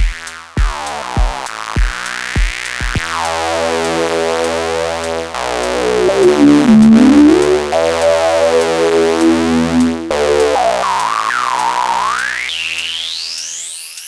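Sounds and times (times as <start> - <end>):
gritty buzzy synthesizer tone: 3.6 - 12.6
whistling resonant filter sweep: 5.6 - 13.8.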